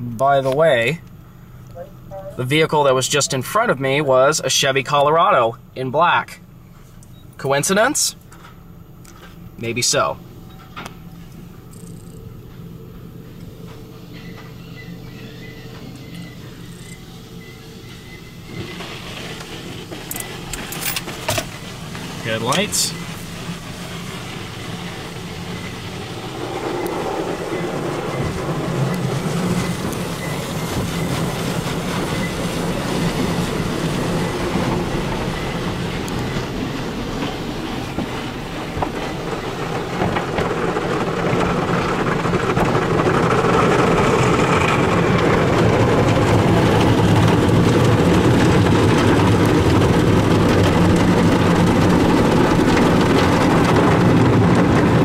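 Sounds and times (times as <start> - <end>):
car wash equipment: 0.0 - 55.0
water spraying on vehicle: 15.5 - 55.0.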